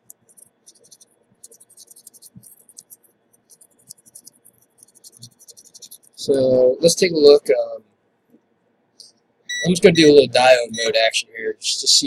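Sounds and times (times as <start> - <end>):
small tool scratching: 0.0 - 6.4.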